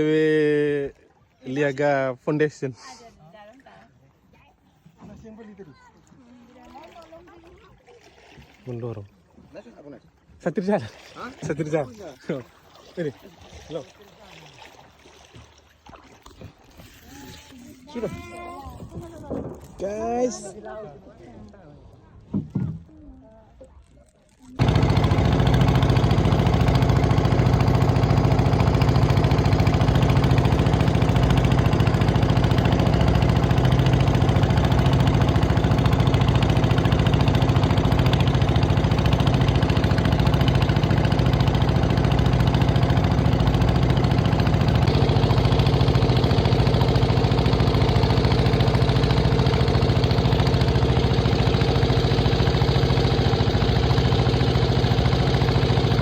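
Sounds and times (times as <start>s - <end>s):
small engine droning: 24.4s - 56.0s.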